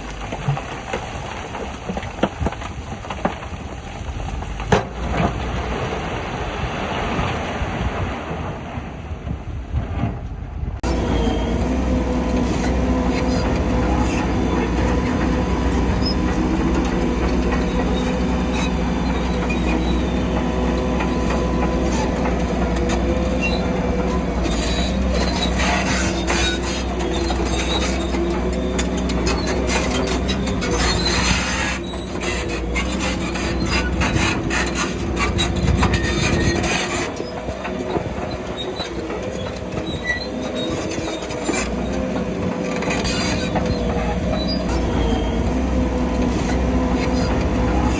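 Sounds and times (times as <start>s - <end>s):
diesel machinery engine: 0.0s - 47.9s
steel tracks squealing and clanking: 10.8s - 47.9s.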